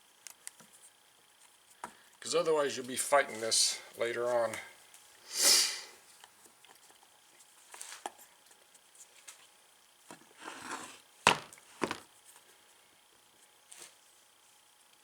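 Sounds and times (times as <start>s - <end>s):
sharp knocks of parts: 11.3s - 12.0s.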